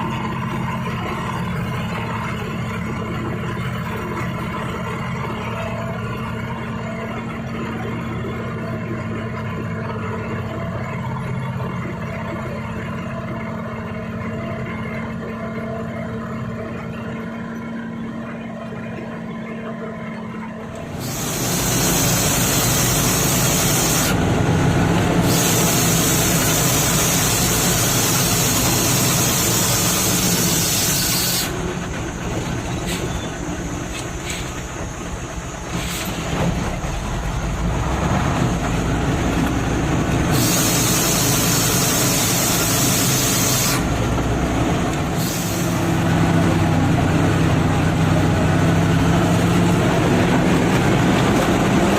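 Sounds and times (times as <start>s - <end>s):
diesel truck engine running: 0.0s - 51.9s
loud hiss: 20.9s - 24.2s, 25.1s - 36.4s, 40.2s - 44.1s, 45.1s - 46.4s.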